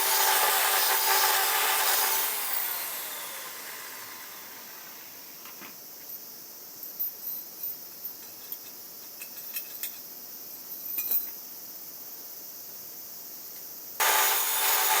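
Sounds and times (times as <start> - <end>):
loud hiss: 0.0 - 5.4, 14.0 - 15.0
crickets buzzing: 0.1 - 15.0
light metallic clinks: 6.0 - 11.5.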